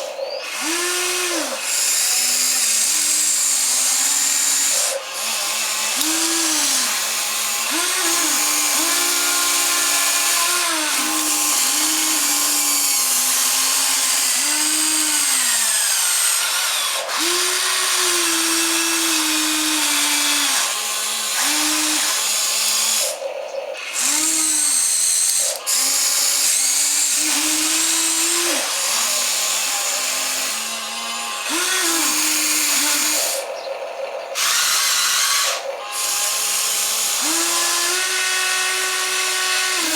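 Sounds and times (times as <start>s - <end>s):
toy excavator motors whining: 0.0s - 39.9s.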